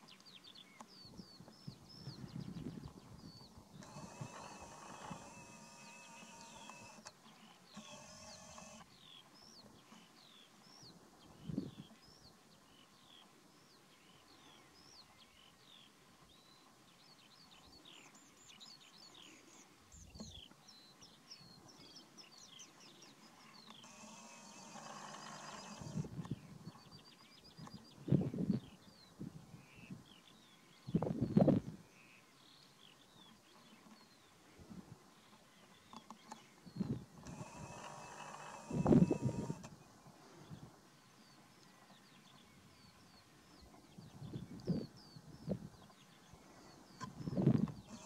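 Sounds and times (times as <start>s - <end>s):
small birds chirping: 0.0s - 48.0s
buzzing rasp: 3.8s - 7.1s, 7.7s - 8.9s, 23.8s - 26.2s, 37.2s - 39.7s.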